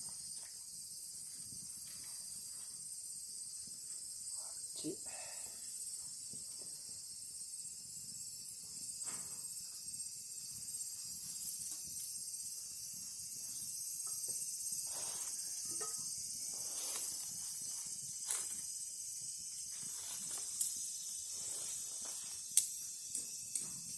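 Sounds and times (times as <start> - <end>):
food sizzling over a fire: 0.0 - 23.9
campfire crackles and pops: 6.0 - 14.7, 15.4 - 23.9.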